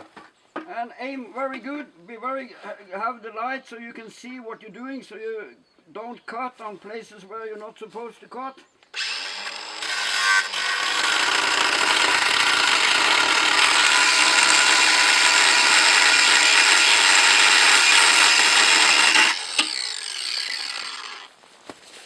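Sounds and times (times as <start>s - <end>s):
angle grinder cutting metal: 9.0s - 21.3s.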